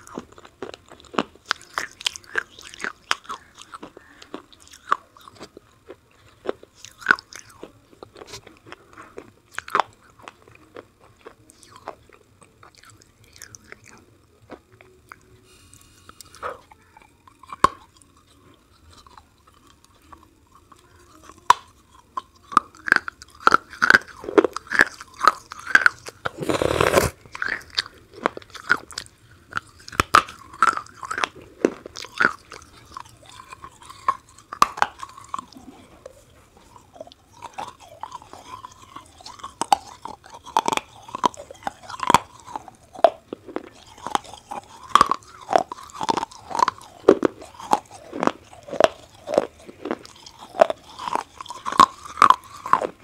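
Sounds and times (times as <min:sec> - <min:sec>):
crunchy biting and chewing: 0:00.0 - 0:53.0.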